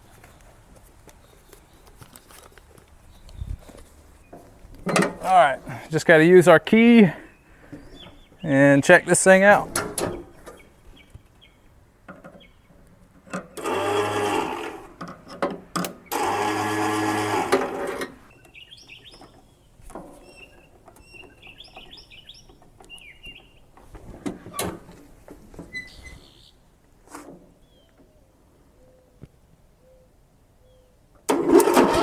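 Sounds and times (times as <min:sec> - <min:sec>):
birds chirping: 0:00.0 - 0:14.1, 0:15.8 - 0:16.5, 0:18.1 - 0:24.0, 0:25.5 - 0:26.8, 0:27.6 - 0:31.0
lawn mower starter cranking: 0:04.8 - 0:05.4, 0:13.2 - 0:18.6, 0:31.3 - 0:32.0.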